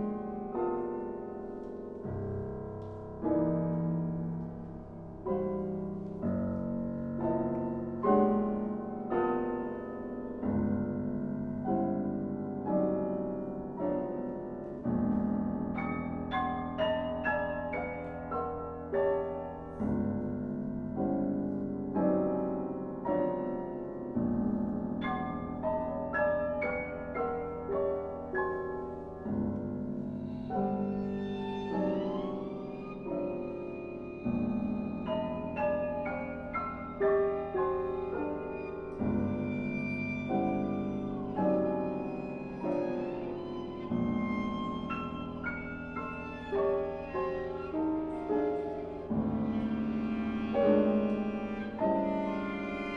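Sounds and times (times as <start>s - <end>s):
piano playing: 0.0s - 52.9s
bowed viola notes: 37.2s - 52.9s.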